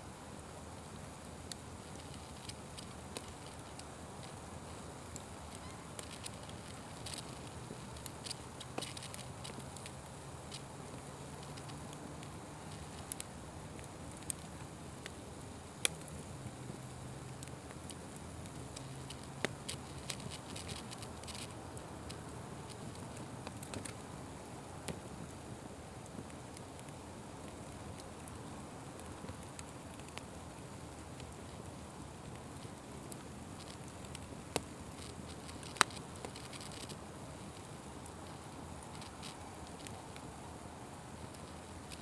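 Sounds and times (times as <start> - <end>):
wood fire crackling and popping: 0.2 - 42.0.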